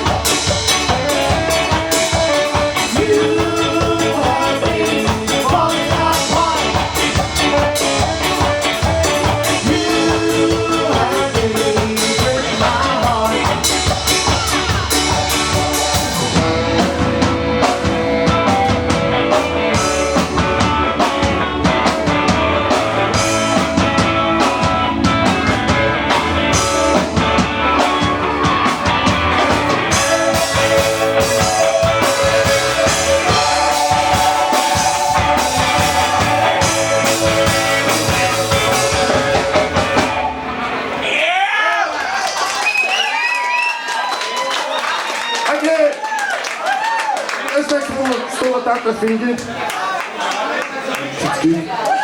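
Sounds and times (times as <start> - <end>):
drum kit beat: 0.0 - 41.0
guitar: 0.0 - 41.3
ska band playing: 0.0 - 49.6.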